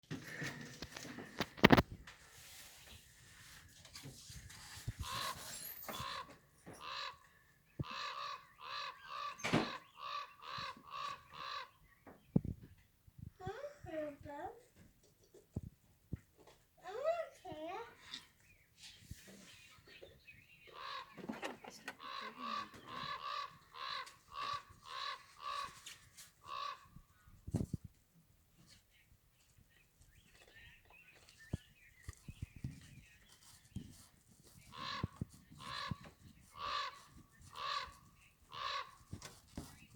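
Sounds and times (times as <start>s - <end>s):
bird squawking: 5.0s - 7.2s, 7.8s - 11.8s, 20.7s - 26.9s, 34.6s - 39.8s.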